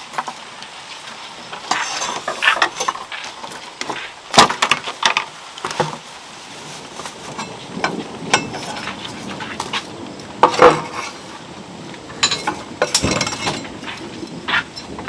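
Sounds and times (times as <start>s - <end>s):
dishes and utensils clinking: 1.6s - 3.1s, 7.3s - 9.0s, 10.4s - 11.3s, 12.2s - 15.0s.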